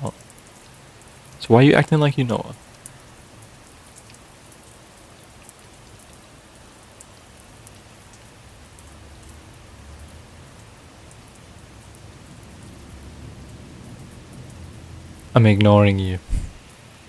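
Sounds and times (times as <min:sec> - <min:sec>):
rain drop ticks: 0:00.0 - 0:10.2
steady rain hiss: 0:00.0 - 0:17.0.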